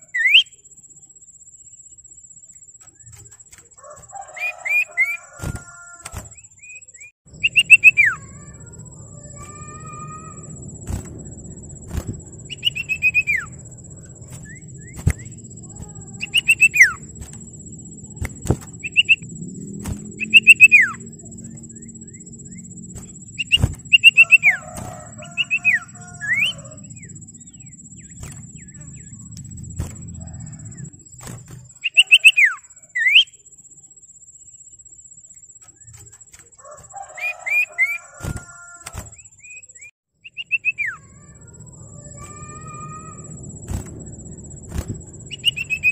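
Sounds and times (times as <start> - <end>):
bird whistling falling notes: 0.0 - 0.6, 2.9 - 33.4, 35.7 - 45.9
thin steady high tone: 0.0 - 45.9
low background rumble: 7.3 - 31.9, 40.3 - 45.9
bird harsh chatter: 7.4 - 11.0, 12.4 - 17.5.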